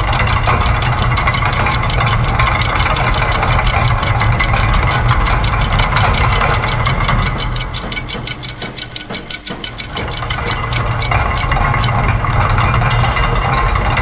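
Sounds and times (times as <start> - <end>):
fast mechanical clicking: 0.0 - 14.0
low machine hum: 0.0 - 14.0.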